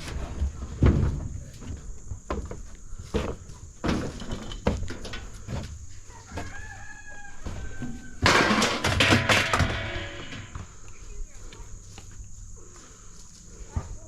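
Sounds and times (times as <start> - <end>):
loud harsh metal sound: 8.2 - 10.5.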